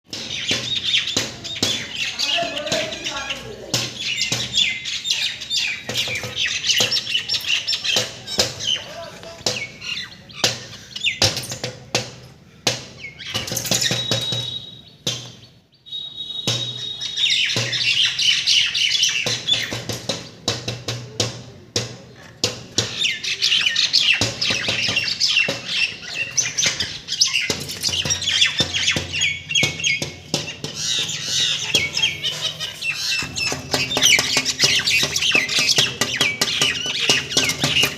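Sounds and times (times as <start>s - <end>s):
pet birds chattering and squawking: 0.1s - 11.8s, 12.6s - 21.0s, 21.7s - 37.9s
thin steady whistle: 14.0s - 14.9s, 15.9s - 17.4s.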